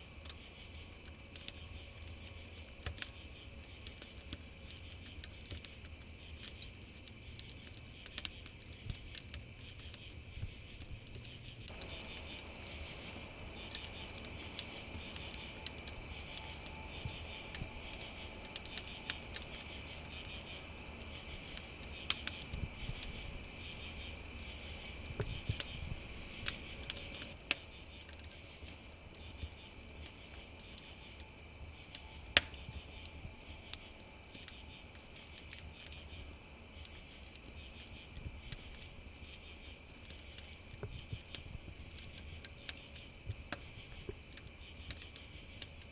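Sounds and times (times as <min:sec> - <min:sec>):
crickets chirping: 0:00.0 - 0:45.9
campfire crackling and popping: 0:00.1 - 0:45.9.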